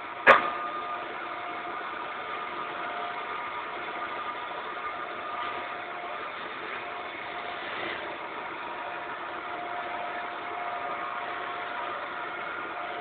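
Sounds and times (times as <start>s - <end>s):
wood lathe whirring: 0.0s - 13.0s.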